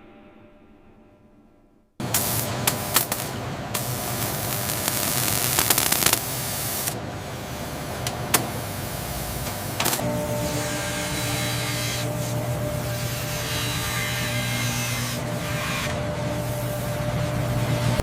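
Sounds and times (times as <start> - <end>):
machinery hissing: 2.0 - 18.0
low machine hum: 7.0 - 18.0.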